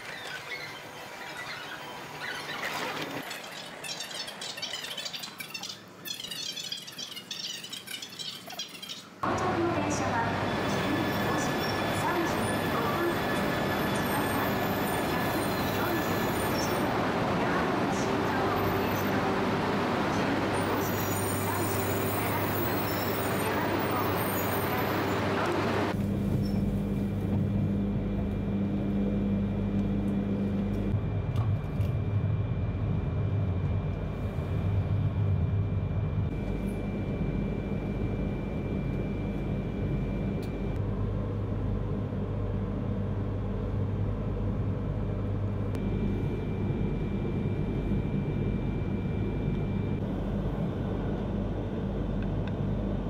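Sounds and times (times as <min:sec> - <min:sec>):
train running rumble and hum: 0:09.2 - 0:28.6
high whine: 0:09.3 - 0:41.0, 0:45.0 - 0:53.0.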